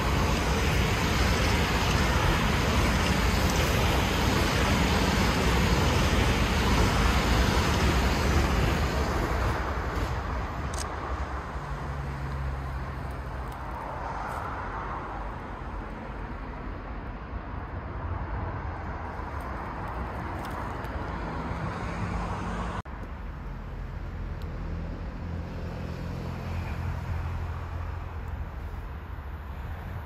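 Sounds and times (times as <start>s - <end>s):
train rumbling past: 0.0s - 22.8s.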